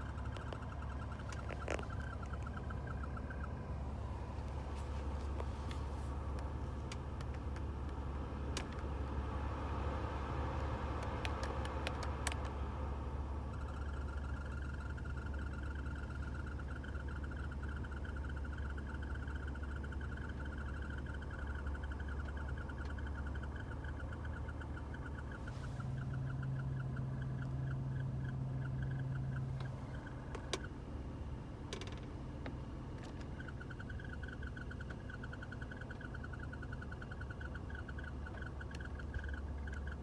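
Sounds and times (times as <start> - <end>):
rapid rhythmic chirping of fan: 0.0 - 40.0
steady low engine hum: 0.0 - 40.0
sharp clicks: 4.3 - 9.3, 10.6 - 12.6.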